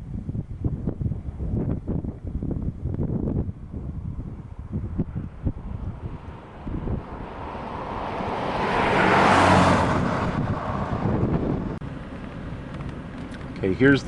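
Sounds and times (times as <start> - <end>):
wind buffeting microphone: 0.0 - 13.5
vehicle passing by: 5.1 - 11.9.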